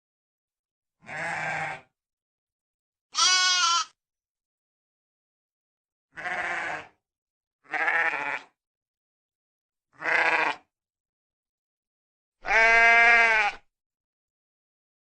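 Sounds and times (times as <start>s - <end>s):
sheep bleating: 1.0s - 1.9s, 3.1s - 4.0s, 6.2s - 7.0s, 7.6s - 8.6s, 10.0s - 10.7s, 12.4s - 13.7s.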